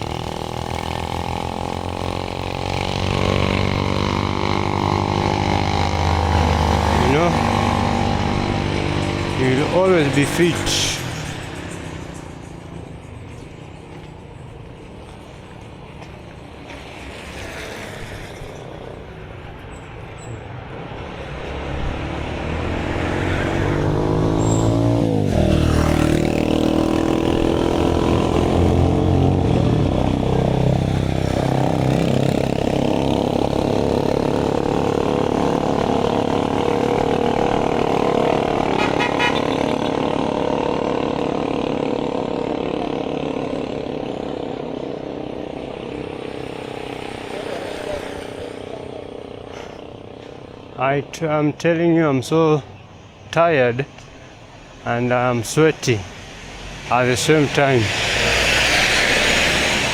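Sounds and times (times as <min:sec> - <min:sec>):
loud steady engine: 0:00.0 - 0:59.9
vehicle passing by: 0:00.0 - 0:59.9.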